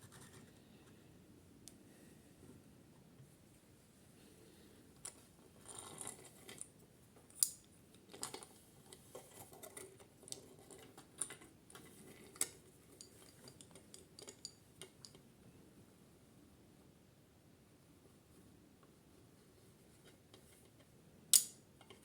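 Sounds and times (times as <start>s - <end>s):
light clicks and rustling: 5.0s - 15.2s.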